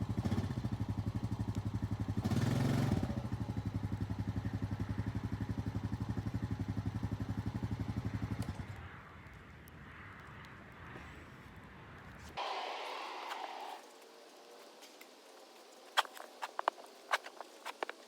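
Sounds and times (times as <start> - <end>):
small engine idling: 0.0 - 8.8, 12.4 - 18.0.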